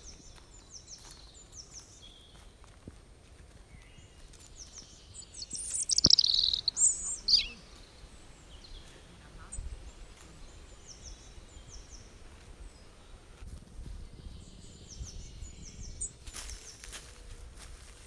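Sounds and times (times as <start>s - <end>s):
soft outdoor background: 0.0s - 18.0s
songbird singing: 0.0s - 18.0s.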